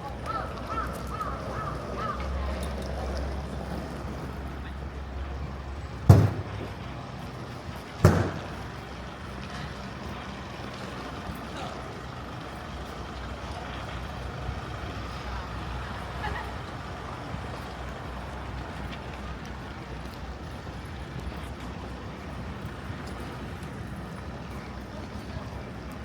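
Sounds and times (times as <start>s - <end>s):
city street traffic: 0.0s - 26.0s
sharp loud bangs: 6.1s - 6.8s, 8.0s - 8.8s.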